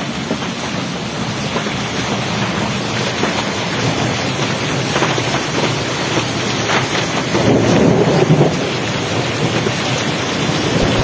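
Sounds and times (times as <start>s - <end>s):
heavy rain hissing: 7.8s - 11.0s.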